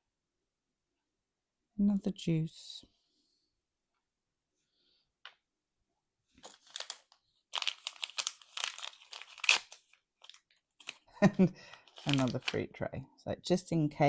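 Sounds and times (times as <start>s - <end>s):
plastic packaging crinkling and tearing: 6.4s - 12.7s.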